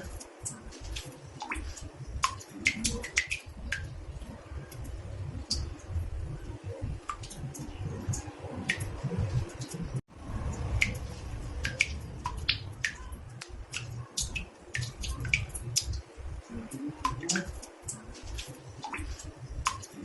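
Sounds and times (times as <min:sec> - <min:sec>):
water drops plinking into bathtub: 0:00.0 - 0:09.8, 0:10.4 - 0:20.0
low rumble: 0:07.7 - 0:13.7.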